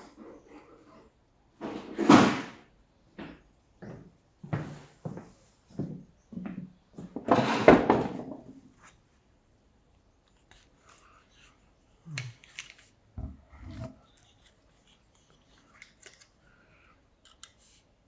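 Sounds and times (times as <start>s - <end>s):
hard objects knocking and scraping: 12.6s - 15.0s.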